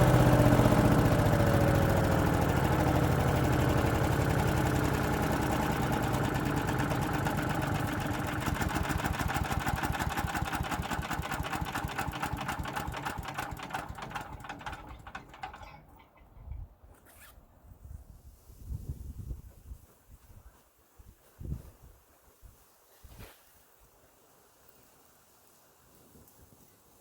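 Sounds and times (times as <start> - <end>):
engine spinning down: 0.0 - 16.2
rotor coasting to a stop: 0.0 - 17.4.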